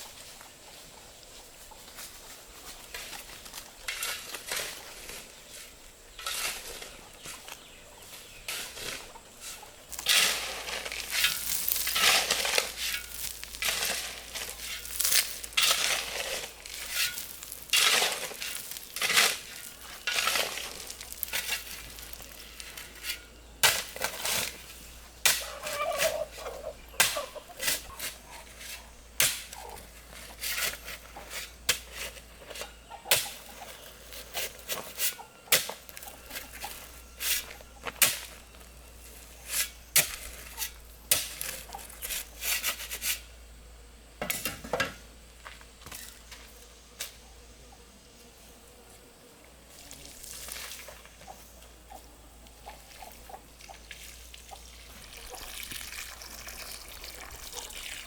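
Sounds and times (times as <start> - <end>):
poultry calling: 25.4 - 28.9.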